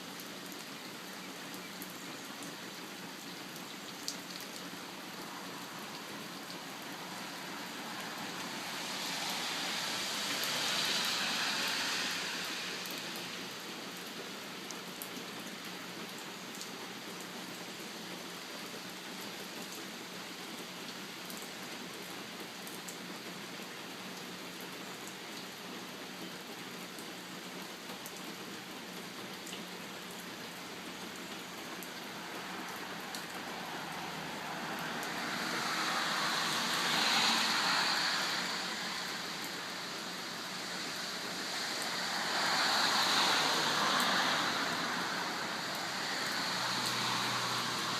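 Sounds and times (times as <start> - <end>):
steady rain falling: 0.0 - 47.9
rushing noise: 6.8 - 13.6, 32.0 - 47.9.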